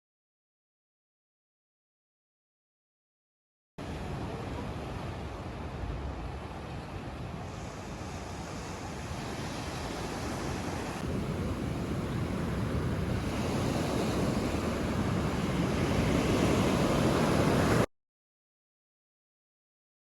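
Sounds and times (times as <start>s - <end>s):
ocean surf rushing: 3.8s - 17.9s.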